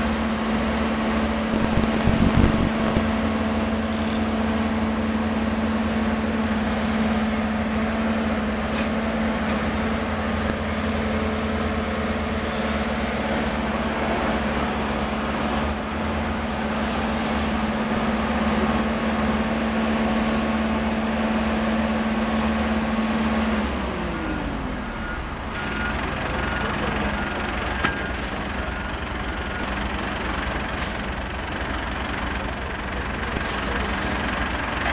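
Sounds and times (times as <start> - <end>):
constant machine hum: 1.4 - 19.0
drilling rig running: 1.6 - 4.3.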